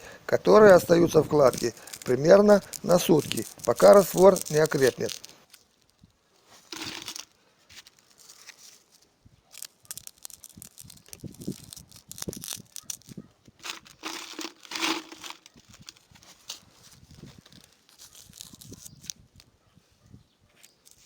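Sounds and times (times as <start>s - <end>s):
bricks clicking and knocking: 1.4s - 5.5s, 9.6s - 16.0s
trowel scraping wet mortar: 13.6s - 15.6s.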